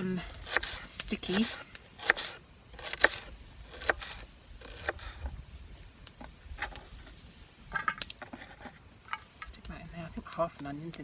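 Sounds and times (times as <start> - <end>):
knife cutting onion on board: 0.4 - 5.3.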